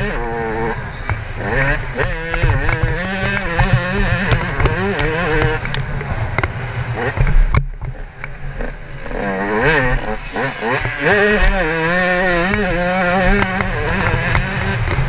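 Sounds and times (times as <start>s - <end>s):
two-stroke motorcycle engine revving: 0.0s - 15.0s
scattered knocks: 2.0s - 8.4s, 12.4s - 15.0s.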